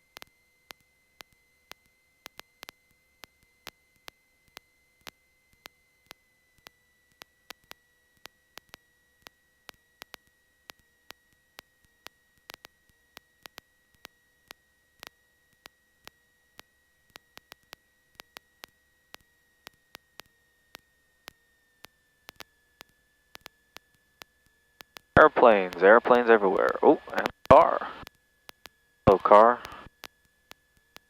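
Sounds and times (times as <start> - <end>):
sharp electrical clicks: 16.6 - 31.0
low hiss: 25.2 - 28.0, 29.1 - 29.9.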